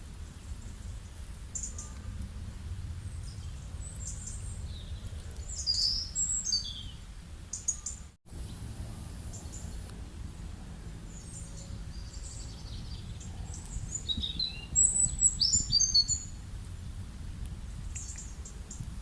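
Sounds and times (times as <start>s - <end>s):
low outdoor rumble: 0.0s - 19.0s
birds chirping: 3.0s - 8.6s, 9.3s - 16.4s.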